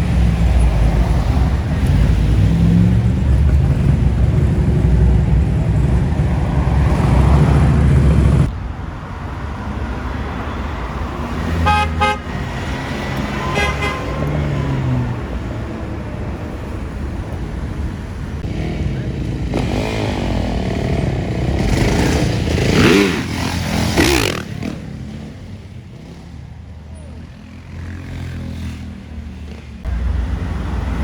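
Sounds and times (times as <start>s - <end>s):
loud car engine rumble: 0.0s - 27.7s, 28.3s - 31.0s
street traffic: 0.0s - 31.0s
car horn toots: 11.5s - 14.6s.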